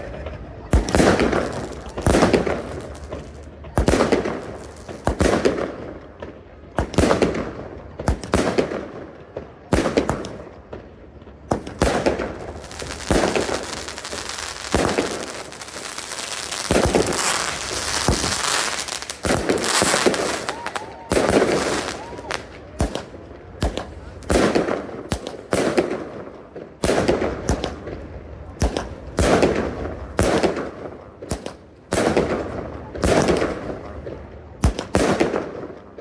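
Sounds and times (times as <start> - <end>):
fireworks crackling: 0.0 - 36.0
firework shells bursting: 0.7 - 5.6, 11.5 - 26.1.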